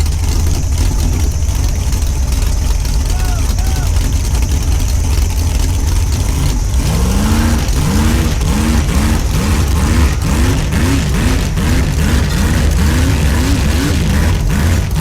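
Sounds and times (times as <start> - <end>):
vehicle engine rumbling: 0.0 - 15.0
rising and falling whoop: 3.0 - 4.1.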